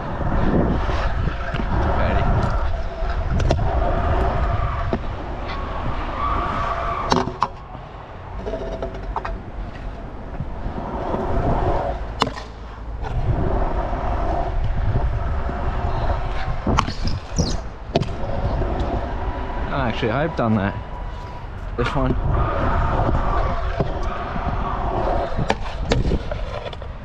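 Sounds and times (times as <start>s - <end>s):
scooter wheels rolling on concrete: 0.0s - 27.0s
scooter landing clacks: 12.2s - 13.1s, 16.6s - 18.9s.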